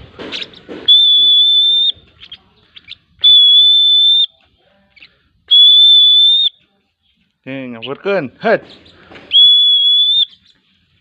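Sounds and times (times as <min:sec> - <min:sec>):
bird chirps: 0:00.3 - 0:10.8
high whistle blasts: 0:00.9 - 0:02.0, 0:03.2 - 0:04.4, 0:05.5 - 0:06.6, 0:09.3 - 0:10.4.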